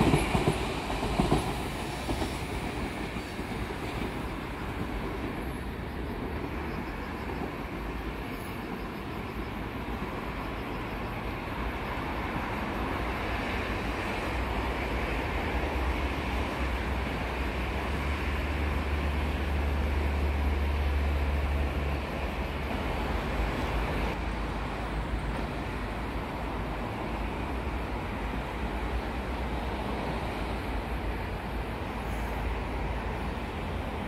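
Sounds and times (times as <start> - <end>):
distant train rumble: 0.0 - 34.0.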